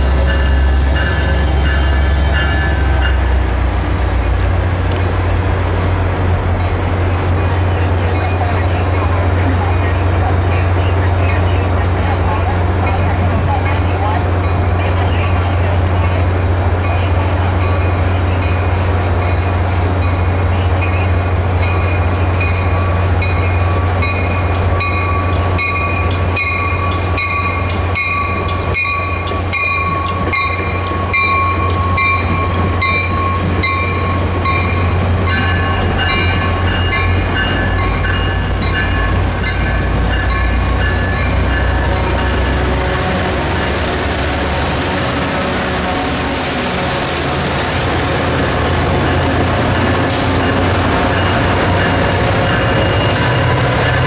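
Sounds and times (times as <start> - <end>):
diesel train low rumble: 0.0 - 54.0
train wheels squealing: 0.1 - 7.4, 24.8 - 42.6, 49.0 - 54.0.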